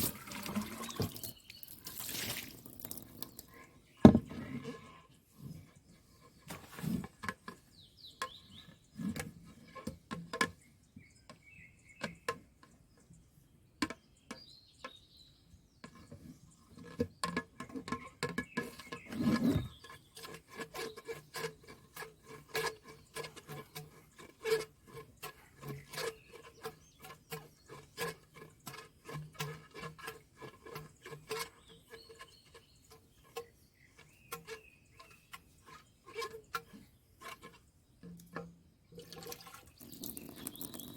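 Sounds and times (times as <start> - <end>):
hands scraping a filter: 0.0 - 7.7, 15.9 - 40.9.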